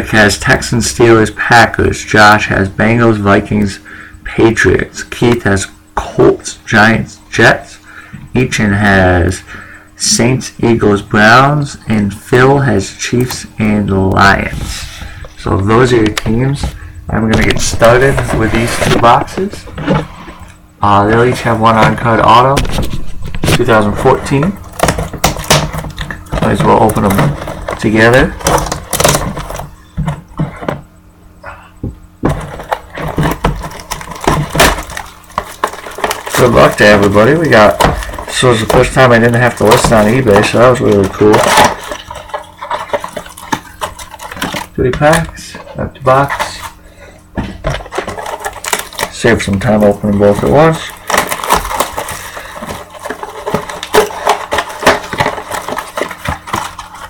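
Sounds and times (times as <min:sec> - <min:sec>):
cardboard boxes tearing and knocking: 0:14.2 - 0:30.9, 0:31.9 - 0:45.3, 0:46.0 - 0:57.0.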